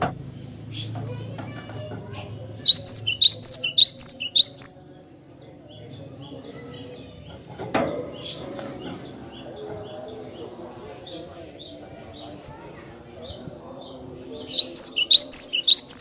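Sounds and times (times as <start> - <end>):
bird chirps: 2.2 - 5.0, 13.2 - 16.0
bird singing sharp high notes: 2.7 - 4.8, 14.5 - 16.0.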